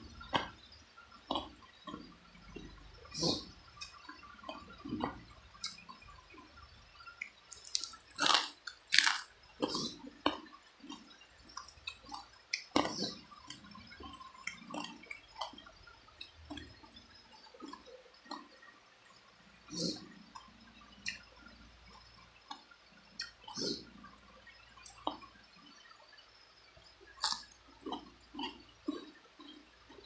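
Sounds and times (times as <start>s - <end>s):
chewing and wet mouth smacks: 7.2s - 15.6s, 23.2s - 23.8s, 26.8s - 30.0s.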